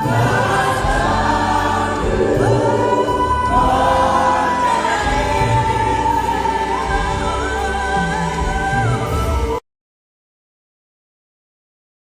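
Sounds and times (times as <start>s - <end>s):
choir singing held notes: 0.0s - 9.6s.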